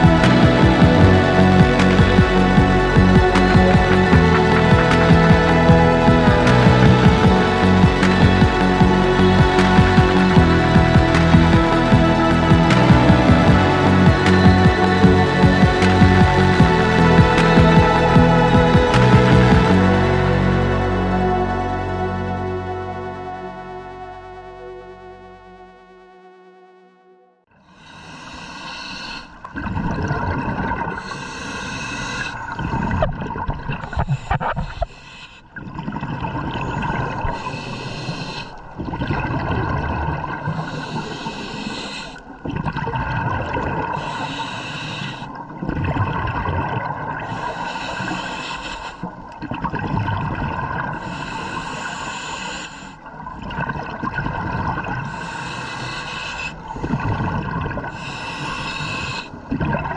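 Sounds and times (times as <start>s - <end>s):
exhaust bubbling underwater: 0.0s - 24.9s, 29.3s - 59.9s
regulator inhale hiss: 27.8s - 29.4s, 31.0s - 32.4s, 33.9s - 35.4s, 37.4s - 38.6s, 40.6s - 42.3s, 44.0s - 45.4s, 47.3s - 49.1s, 51.0s - 53.0s, 55.0s - 57.1s, 57.9s - 59.4s.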